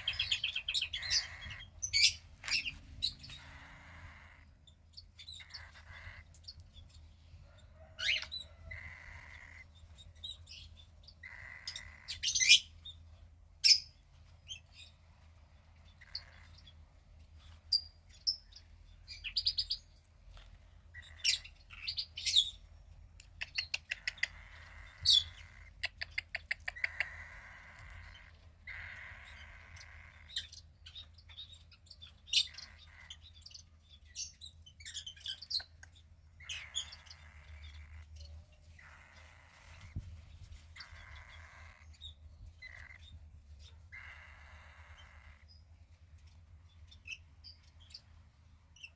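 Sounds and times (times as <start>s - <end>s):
bird chick chirping: 0.0s - 20.1s, 20.9s - 48.9s
faint low hum: 0.0s - 48.9s
hissy bird calls: 23.2s - 31.0s.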